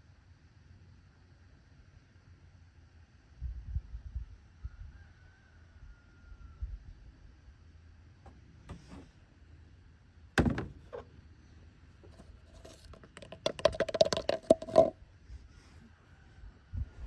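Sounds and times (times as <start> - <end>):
tool thunk: 8.7 - 9.1, 10.4 - 11.1.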